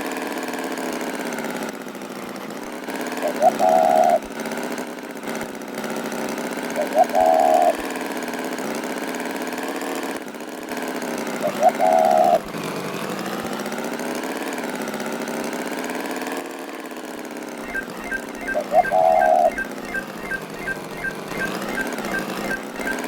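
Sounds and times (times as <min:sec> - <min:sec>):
tractor engine running: 0:10.4 - 0:23.0
high chirping call: 0:17.6 - 0:23.0.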